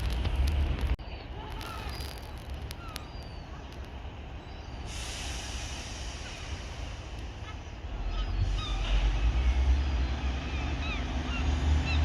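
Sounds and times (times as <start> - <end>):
train engine rumble: 0.0 - 12.0
air hiss: 4.8 - 7.4.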